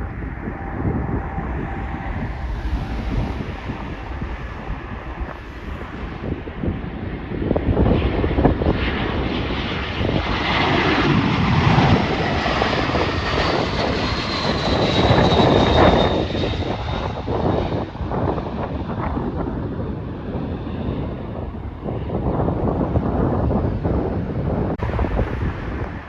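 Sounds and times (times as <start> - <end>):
high engine whine: 0.0 - 18.7
jet engines rumbling: 0.0 - 26.0
wind buffeting microphone: 0.0 - 26.0.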